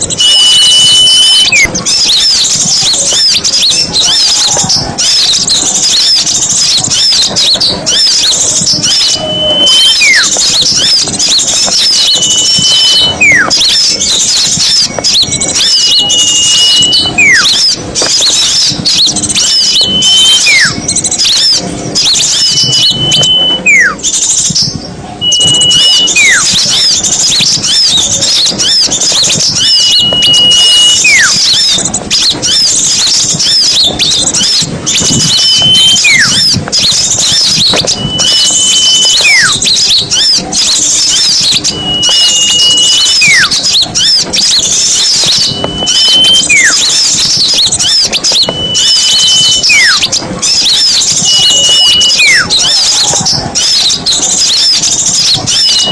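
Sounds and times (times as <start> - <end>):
bird whistle call: 0.0 - 55.9
flock of songbirds chattering: 0.0 - 55.9.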